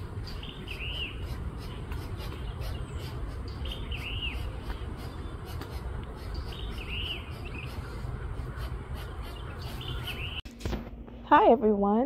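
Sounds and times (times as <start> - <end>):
songbird chirping: 0.0 - 10.4
steady low rumble: 0.0 - 12.0.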